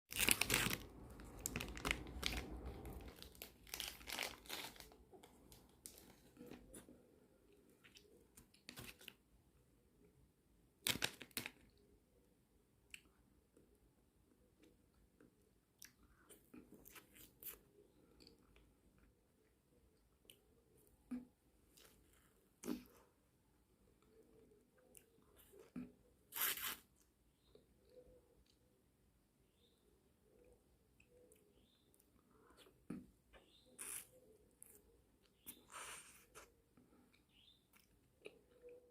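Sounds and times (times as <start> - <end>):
plastic wrapper crinkling: 0.1 - 6.6.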